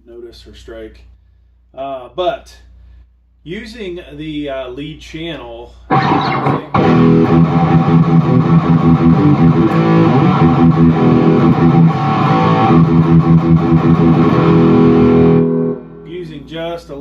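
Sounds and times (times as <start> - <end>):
distorted electric guitar riff: 5.9 - 16.2.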